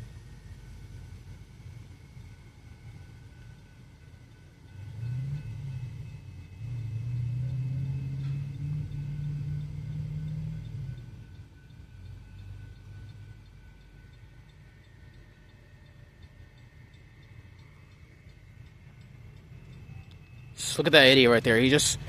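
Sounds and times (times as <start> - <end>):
railroad crossing bell dinging: 0.0 - 22.0
car engine accelerating: 4.6 - 13.6.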